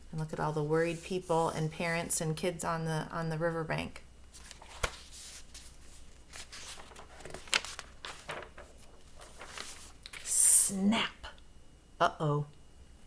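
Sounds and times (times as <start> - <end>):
paper rustling: 4.3 - 10.3.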